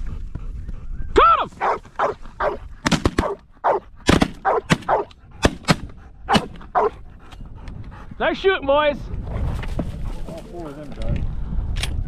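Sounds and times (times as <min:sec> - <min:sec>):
short calls or barks: 0:01.6 - 0:02.6, 0:03.2 - 0:05.1, 0:06.3 - 0:07.0
shotgun blasts: 0:02.8 - 0:03.4, 0:04.0 - 0:06.9.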